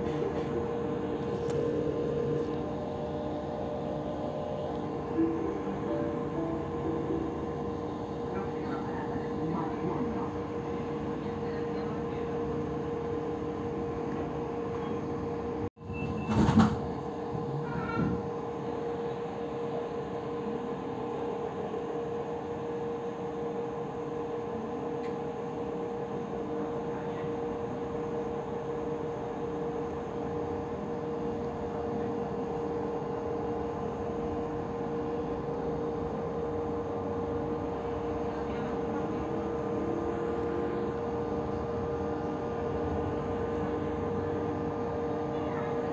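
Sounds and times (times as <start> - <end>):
constant hum: 0.0 - 21.2.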